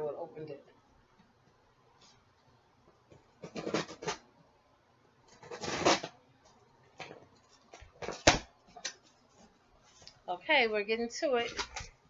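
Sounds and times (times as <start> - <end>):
cardboard scraping and tearing: 3.4 - 4.2, 5.3 - 6.1.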